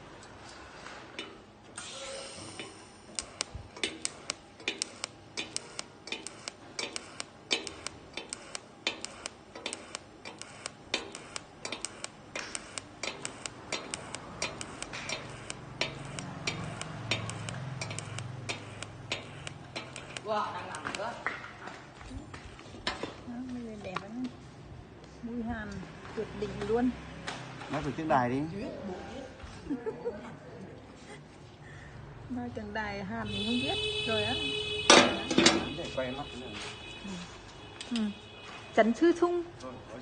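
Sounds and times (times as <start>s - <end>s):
arc welding crackles and pops: 1.2s - 24.3s.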